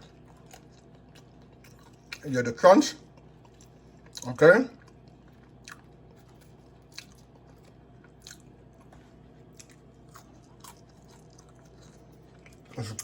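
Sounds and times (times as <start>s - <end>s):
chewing crispy fries: 0.0s - 13.0s.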